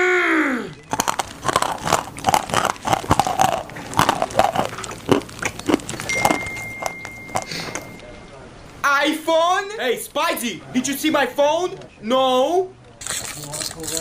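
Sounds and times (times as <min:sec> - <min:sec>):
crunching and chewing: 0:00.7 - 0:08.1, 0:13.0 - 0:14.0
steady high beep: 0:06.1 - 0:08.6.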